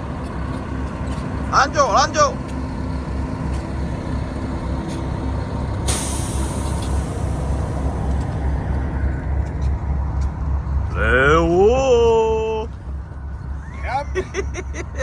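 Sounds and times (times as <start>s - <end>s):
heavy engine idling: 0.0s - 15.0s
air release hiss: 5.8s - 7.7s
man calling out: 10.9s - 12.8s, 13.8s - 14.2s.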